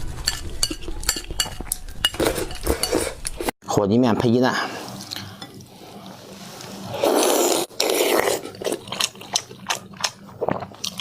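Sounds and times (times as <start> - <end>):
person slurping noodles: 6.0 - 9.2.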